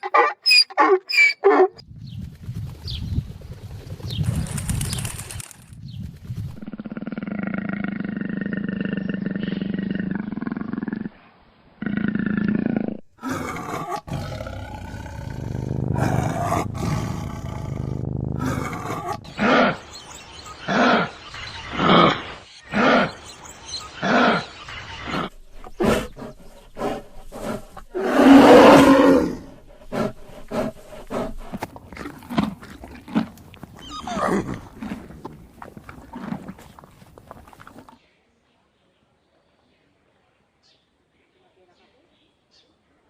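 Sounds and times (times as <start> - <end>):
animal calling: 0.0 - 1.8, 13.4 - 38.0.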